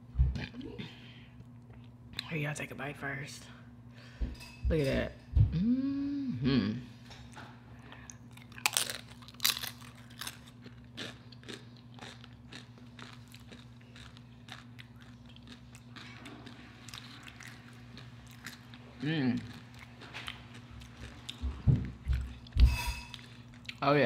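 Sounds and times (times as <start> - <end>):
steady low hum: 0.0 - 24.0
quiet chewing: 1.3 - 2.3, 7.1 - 23.8
tortilla chip crunching: 8.1 - 21.4.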